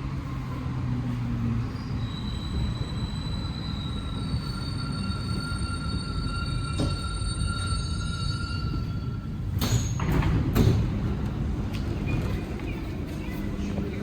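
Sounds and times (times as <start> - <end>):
metro car running rumble: 0.0 - 14.0.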